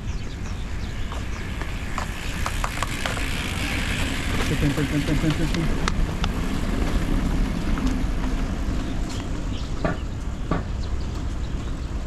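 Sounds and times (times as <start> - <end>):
distant traffic rumble: 0.0 - 12.0.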